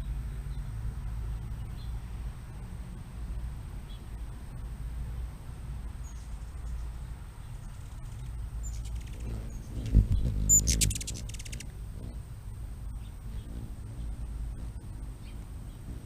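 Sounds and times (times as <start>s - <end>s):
steady low rumble: 0.0s - 16.0s
rapid chattering calls: 7.8s - 12.2s
high animal chirps: 8.6s - 11.7s.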